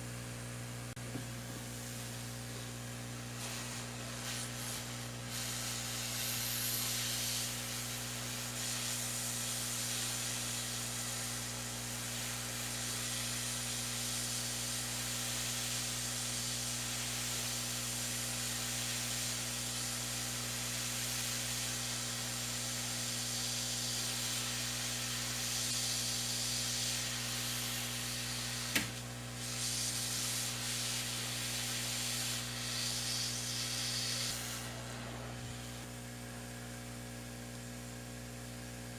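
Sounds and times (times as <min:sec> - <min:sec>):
hot air blowing hiss: 0:01.7 - 0:36.0
sharp click: 0:28.7 - 0:29.0.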